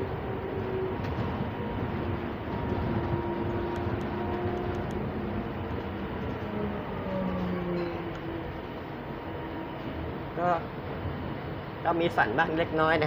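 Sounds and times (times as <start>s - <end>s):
rumble of tyres: 0.0s - 10.2s.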